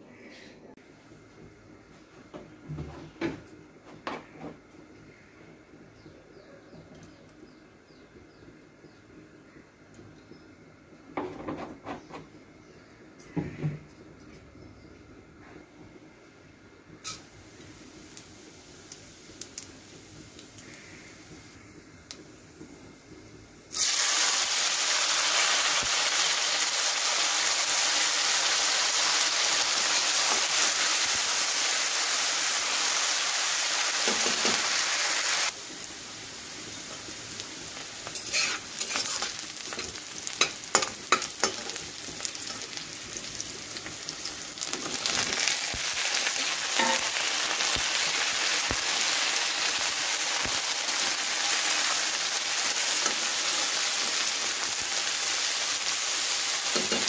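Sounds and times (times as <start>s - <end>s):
vegetables sizzling in a wok: 16.8s - 57.0s.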